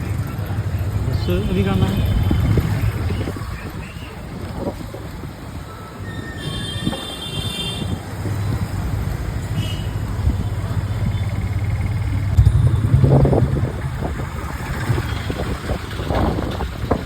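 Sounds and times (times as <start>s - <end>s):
engine hum: 10.3s - 17.0s
high ringing tone: 12.4s - 14.0s.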